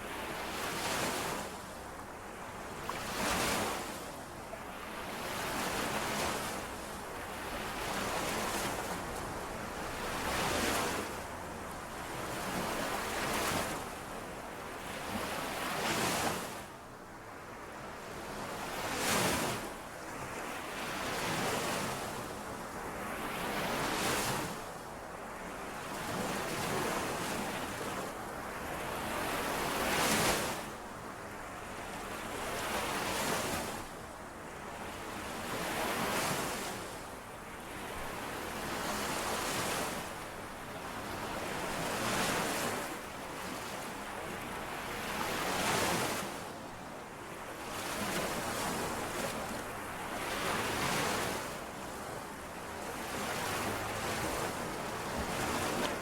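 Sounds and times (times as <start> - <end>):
lake waves washing on shore: 47.6 - 56.0.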